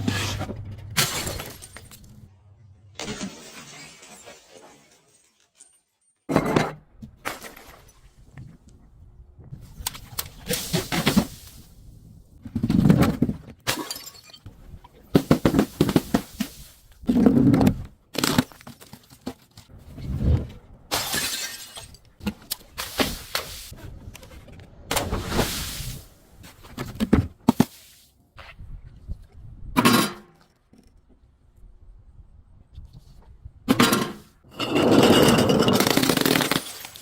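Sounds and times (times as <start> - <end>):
glass bottles breaking: 1.0 - 2.1, 13.7 - 14.5, 20.9 - 22.0, 34.9 - 37.0.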